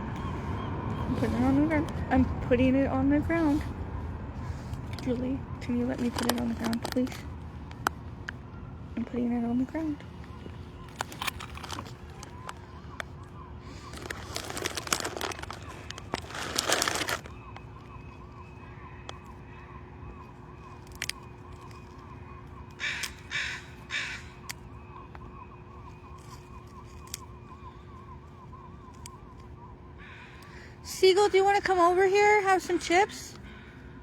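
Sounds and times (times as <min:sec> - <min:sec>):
phone handling rustling: 0:05.9 - 0:08.0, 0:10.2 - 0:13.2, 0:13.8 - 0:17.3
bird cawing: 0:10.0 - 0:30.9, 0:32.6 - 0:34.0.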